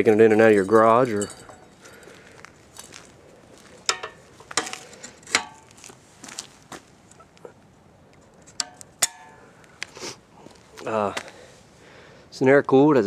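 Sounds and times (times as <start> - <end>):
metal parts clinking and knocking: 0.0 - 3.0, 3.7 - 5.7.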